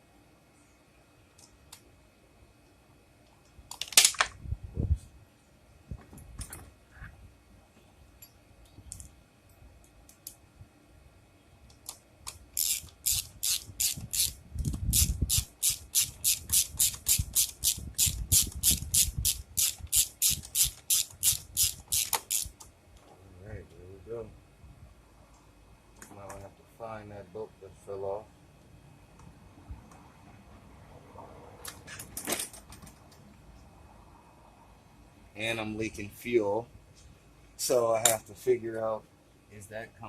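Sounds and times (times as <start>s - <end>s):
socket ratchet clicking: 11.7s - 22.6s.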